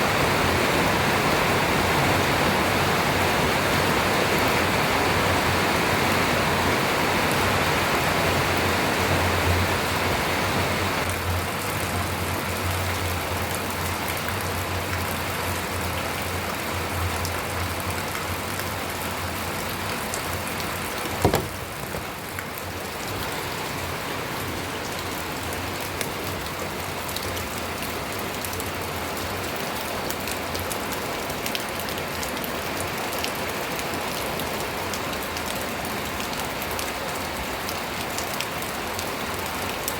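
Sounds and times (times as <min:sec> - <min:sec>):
steady rain with drops pattering: 0:00.0 - 0:39.9
sharp knock: 0:21.0 - 0:22.1.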